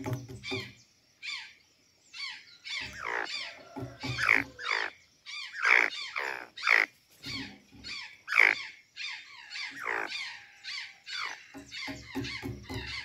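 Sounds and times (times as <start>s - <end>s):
jays squawking: 2.7s - 13.0s.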